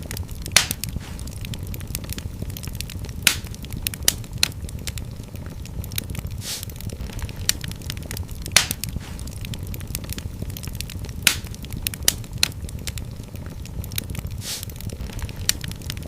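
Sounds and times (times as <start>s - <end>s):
low rumble of flames: 0.0s - 16.0s
wood fire crackling and popping: 0.0s - 16.0s
short hiss: 6.4s - 6.7s, 14.4s - 14.7s.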